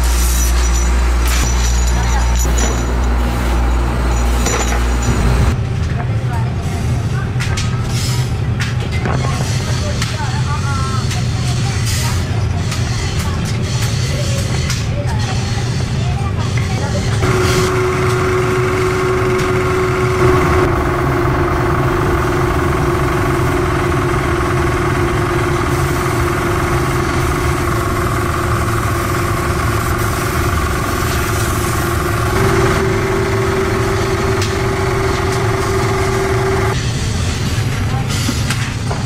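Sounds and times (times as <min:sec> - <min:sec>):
workshop machine motor humming: 0:00.0 - 0:05.6, 0:17.2 - 0:36.8.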